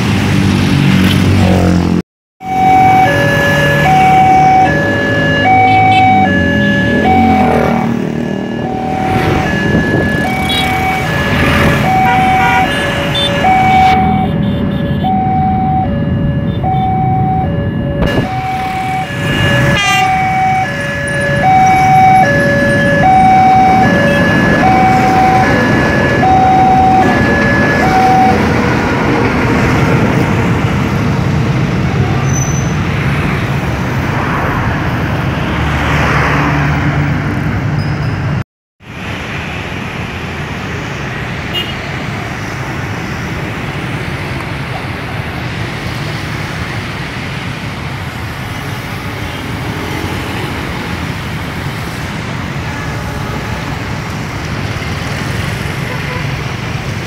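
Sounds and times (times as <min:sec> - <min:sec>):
motorcycles passing: 0:00.0 - 0:38.4, 0:40.3 - 0:57.0
cars passing: 0:00.0 - 0:57.0
two-tone crossing alarm: 0:02.4 - 0:28.8.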